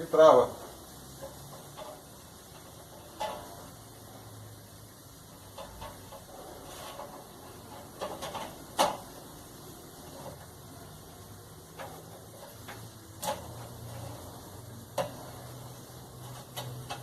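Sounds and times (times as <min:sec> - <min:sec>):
clicks and knocks of parts handled: 0:06.9 - 0:09.1.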